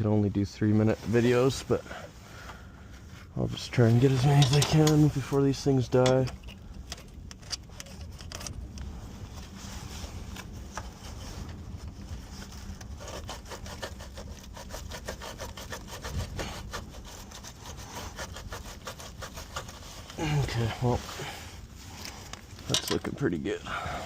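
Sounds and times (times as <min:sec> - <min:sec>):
wire brush scrubbing: 0:03.5 - 0:06.3, 0:09.5 - 0:23.2.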